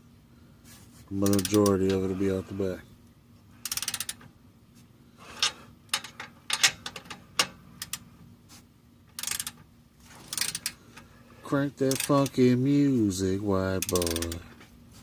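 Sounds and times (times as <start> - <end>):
socket ratchet clicking: 1.2 - 1.8, 3.6 - 4.2, 9.1 - 9.6, 10.3 - 10.8, 11.9 - 12.4, 13.8 - 14.4.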